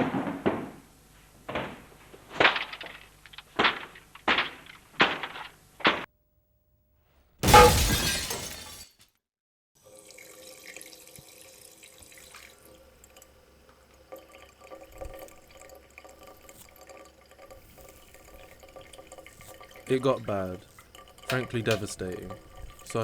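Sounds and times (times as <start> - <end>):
glass-like crash of breaking: 7.4 - 9.0.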